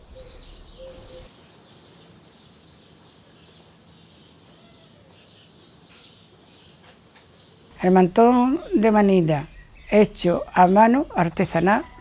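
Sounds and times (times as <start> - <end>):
small birds chirping quietly: 0.0 - 12.0.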